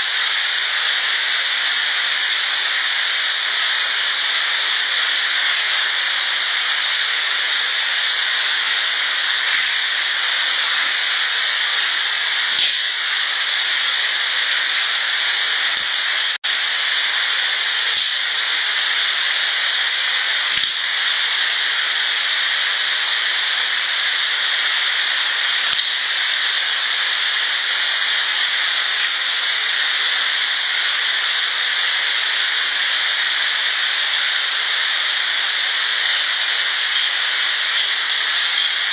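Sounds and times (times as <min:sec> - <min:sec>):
loud steady hiss: 0:00.0 - 0:38.9.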